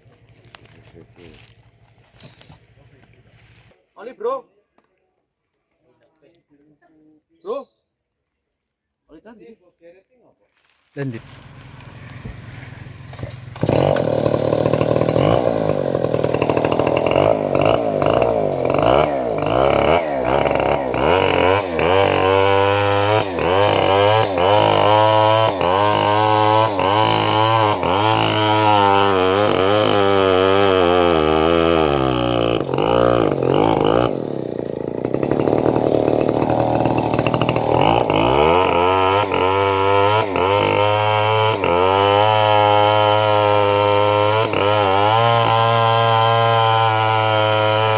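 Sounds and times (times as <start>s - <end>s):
engine-driven bandsaw cutting wood: 12.0s - 47.9s.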